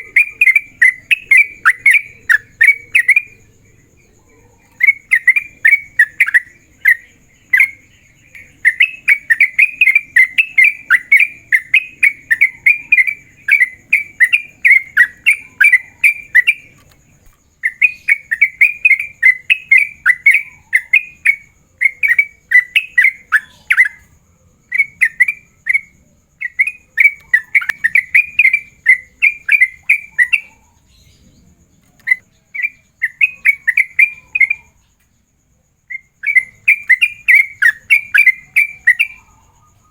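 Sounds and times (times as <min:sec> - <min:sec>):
bulbul singing chattering notes: 0:00.0 - 0:03.5.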